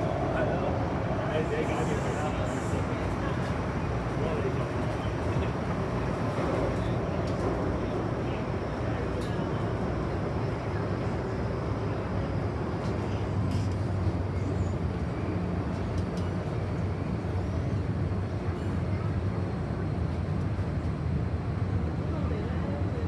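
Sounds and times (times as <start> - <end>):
train wheels rumbling on rail: 0.0 - 11.2.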